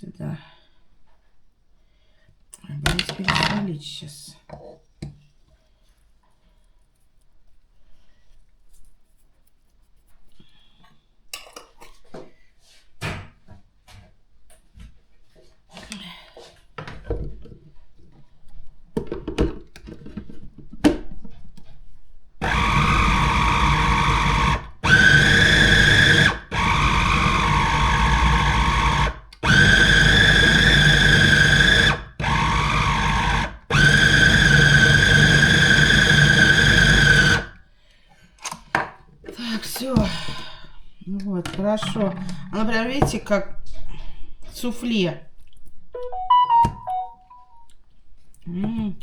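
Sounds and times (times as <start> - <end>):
electric blender running: 22.4 - 37.6.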